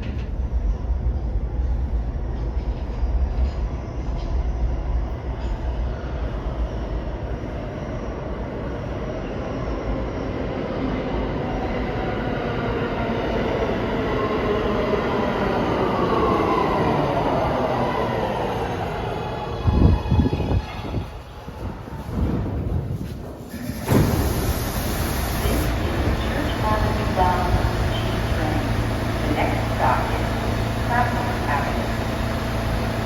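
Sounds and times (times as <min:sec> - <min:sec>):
subway train rumble: 0:00.0 - 0:33.0
rail clicks: 0:23.1 - 0:33.0.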